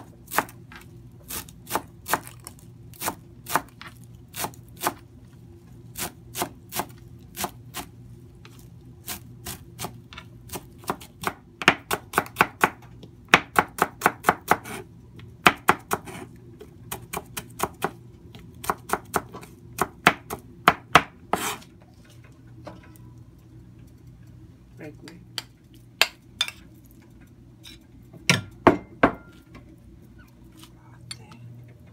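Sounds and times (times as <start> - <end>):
knife chopping on a cutting board: 0.0 - 2.4, 9.1 - 14.8, 15.4 - 16.3, 16.9 - 18.0, 18.6 - 21.6.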